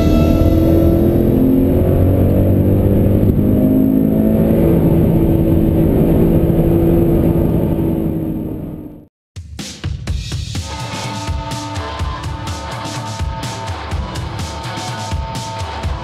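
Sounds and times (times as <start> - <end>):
car engine accelerating: 0.0 - 9.1.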